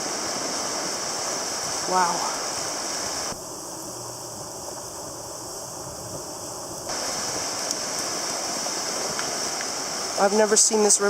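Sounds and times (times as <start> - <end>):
flooded river rushing: 0.0 - 3.4, 6.9 - 11.0.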